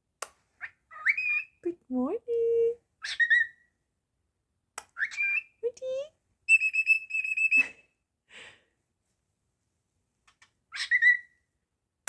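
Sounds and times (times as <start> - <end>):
bird chirping: 0.6 - 1.7, 3.0 - 3.7, 4.9 - 5.6, 6.5 - 7.8, 10.7 - 11.4
bird whistling: 6.5 - 7.7.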